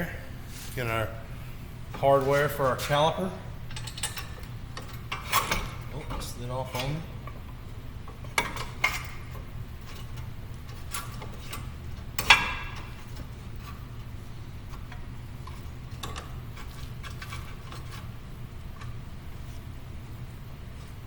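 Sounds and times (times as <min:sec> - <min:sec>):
metal bolts clicking and clinking: 0:03.7 - 0:07.6.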